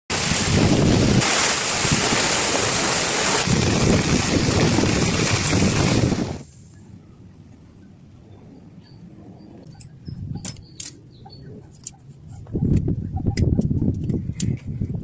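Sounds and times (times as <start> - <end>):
heavy rain pouring with wind: 0.1 - 6.4.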